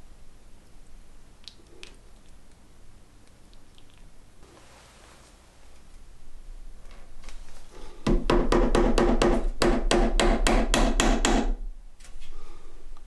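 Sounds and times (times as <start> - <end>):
hammer tapping on wood: 8.1 - 11.6.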